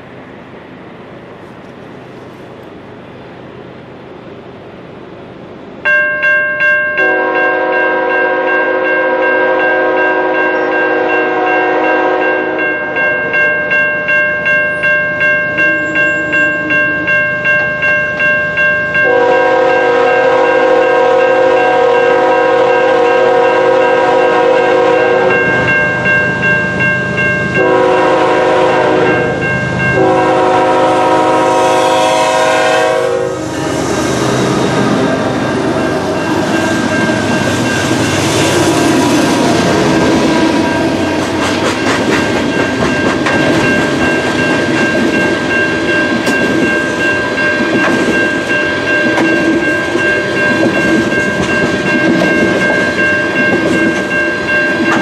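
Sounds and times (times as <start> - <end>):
freight train rumbling past: 0.0 - 55.0
locomotive air horn blasts: 7.0 - 12.8, 19.0 - 25.6, 27.6 - 29.4, 30.0 - 36.8
wheels clicking over rail joints: 39.6 - 55.0.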